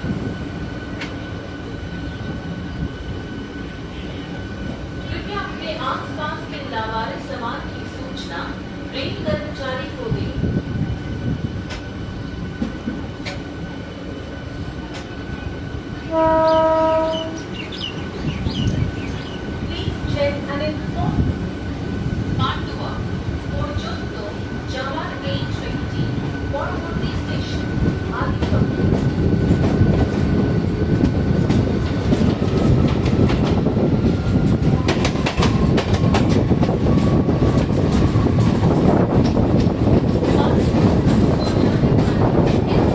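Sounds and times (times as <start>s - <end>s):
low rumble of a train: 0.0s - 42.9s
train horn blast: 16.1s - 17.4s.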